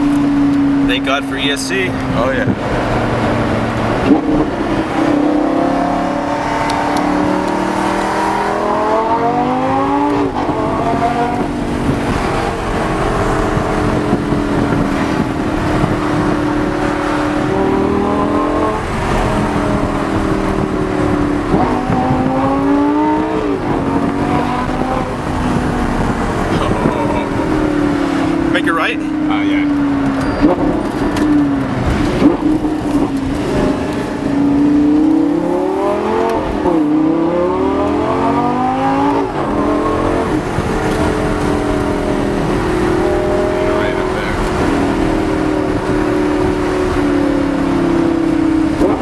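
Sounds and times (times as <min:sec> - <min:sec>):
car engine accelerating hard: 0:00.0 - 0:49.0.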